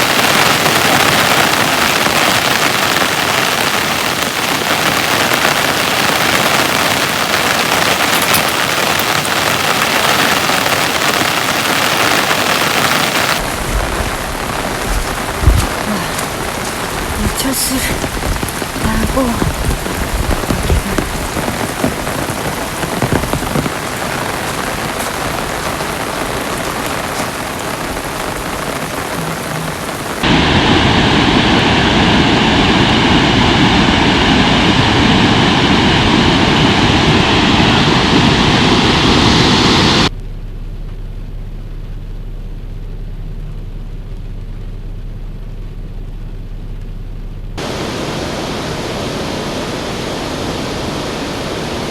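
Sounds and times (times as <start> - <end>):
heavy rain hiss: 0.0 - 40.1, 47.6 - 51.9
rush of water: 0.0 - 40.1, 47.6 - 51.9
low hum: 13.4 - 27.0, 27.6 - 51.9.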